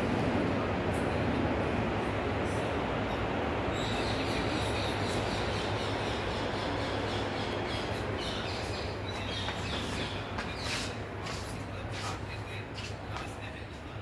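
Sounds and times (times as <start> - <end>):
steady low hum: 0.0 - 14.0
birds chirping: 2.4 - 13.6.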